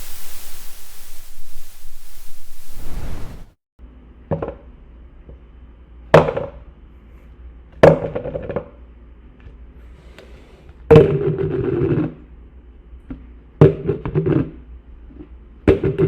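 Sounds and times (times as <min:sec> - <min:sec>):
steady hiss: 0:00.0 - 0:03.6.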